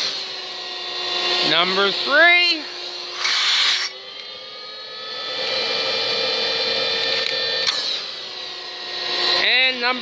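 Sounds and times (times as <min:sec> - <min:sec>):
shop vac motor whining: 0:00.0 - 0:10.0
click: 0:07.2 - 0:07.8.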